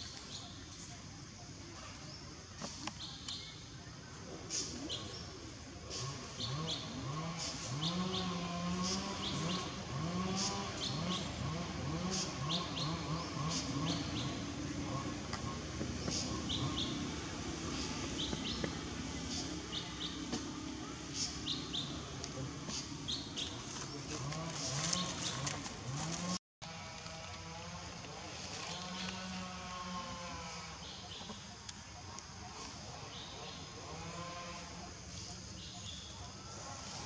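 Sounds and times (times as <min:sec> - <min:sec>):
small birds chirping: 0:00.0 - 0:26.4.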